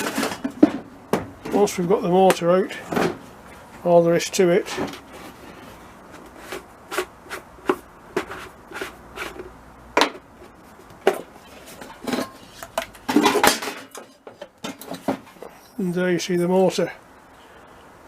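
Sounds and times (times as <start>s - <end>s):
metal clatter: 11.1s - 15.4s.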